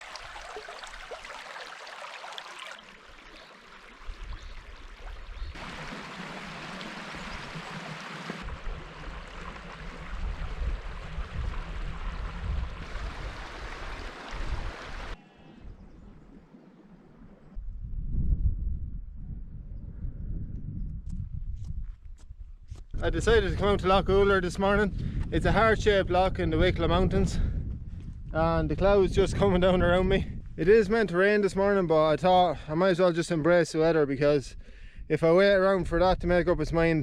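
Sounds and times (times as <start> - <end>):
wind rumble on microphone: 8.4 - 31.9, 34.4 - 37.0.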